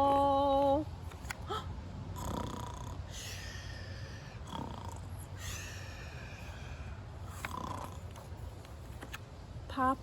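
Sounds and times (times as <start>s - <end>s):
person imitating snoring: 2.2s - 3.1s, 4.4s - 5.1s.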